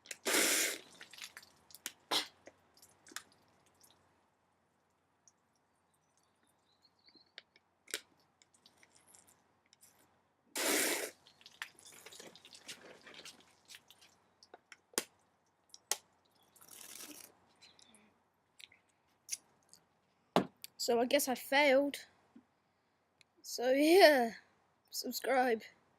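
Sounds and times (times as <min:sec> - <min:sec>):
slurping soda: 0:00.0 - 0:01.5, 0:10.6 - 0:13.9, 0:16.6 - 0:17.3
soda spurting from can: 0:00.0 - 0:02.4, 0:10.6 - 0:14.0, 0:16.5 - 0:17.3.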